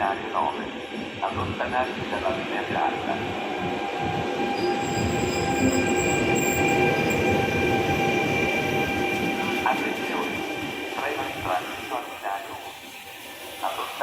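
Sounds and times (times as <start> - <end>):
train rumbling past: 0.0 - 14.0
metallic wheel squeal: 4.6 - 7.3.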